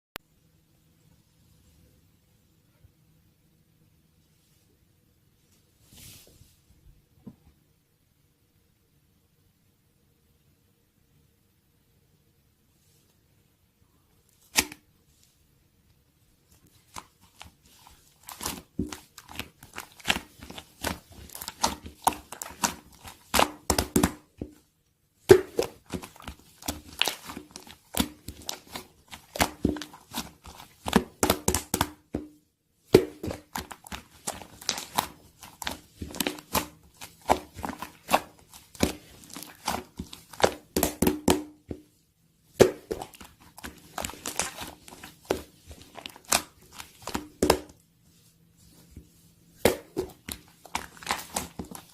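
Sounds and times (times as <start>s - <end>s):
slime squished by hand crackling: 16.6s - 24.6s, 25.2s - 32.3s, 32.9s - 48.3s, 49.1s - 51.9s.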